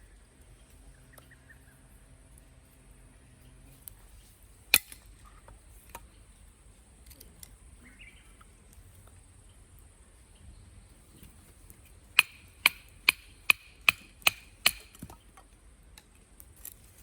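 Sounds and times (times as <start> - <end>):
bird chirping: 0.0 - 15.4
hatchet striking firewood: 4.7 - 5.1, 12.1 - 15.2.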